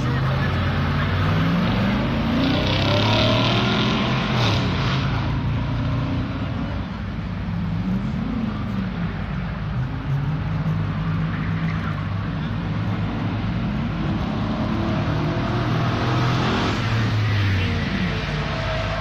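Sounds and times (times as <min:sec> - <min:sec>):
car engine accelerating hard: 0:00.0 - 0:06.6, 0:11.8 - 0:19.0.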